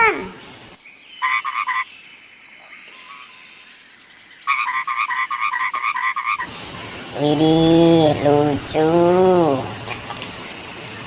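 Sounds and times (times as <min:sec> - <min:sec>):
frog croaking: 0:01.2 - 0:01.9, 0:02.6 - 0:03.5, 0:04.4 - 0:06.5.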